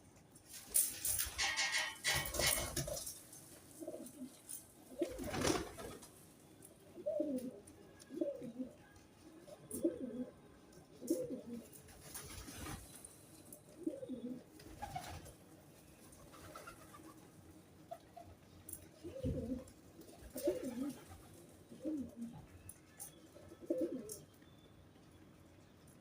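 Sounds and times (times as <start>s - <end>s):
pigeons cooing: 3.8s - 6.0s, 6.9s - 8.8s, 9.4s - 11.8s, 13.7s - 15.3s, 19.0s - 22.5s, 23.4s - 24.2s.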